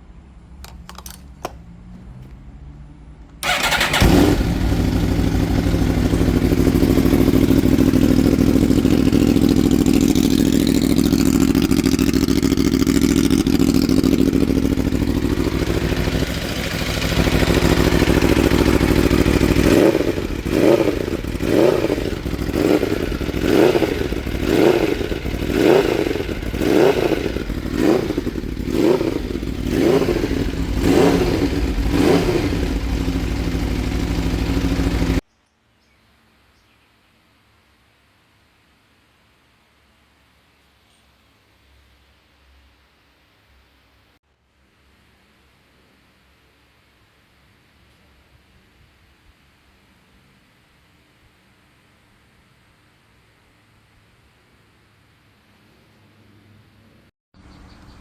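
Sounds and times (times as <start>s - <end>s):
motorcycle engine idling and revving: 0.6s - 35.2s.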